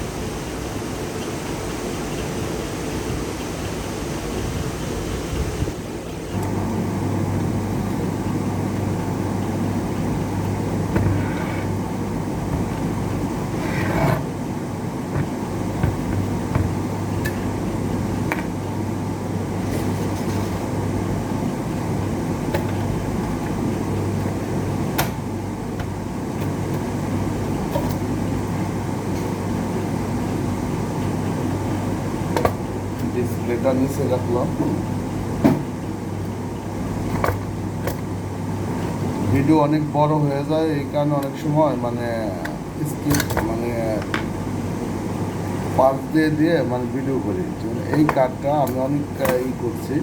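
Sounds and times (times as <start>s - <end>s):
electric fan running: 0.0s - 50.0s
low electrical hum: 0.0s - 50.0s.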